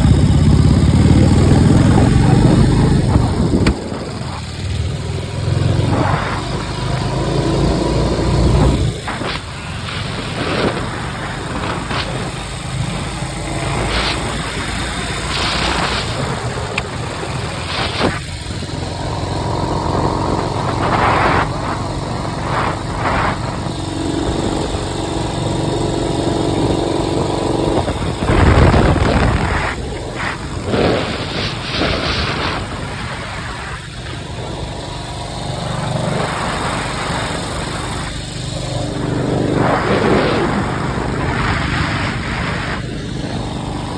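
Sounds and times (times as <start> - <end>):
motorcycle engine running: 0.0 - 43.9
wind rush: 0.0 - 43.9.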